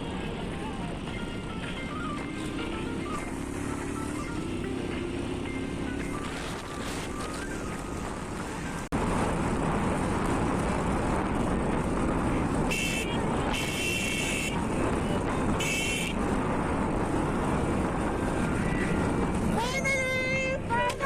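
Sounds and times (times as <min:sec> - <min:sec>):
motorbike engine and road noise: 0:00.0 - 0:21.0
horn honking: 0:12.7 - 0:16.2.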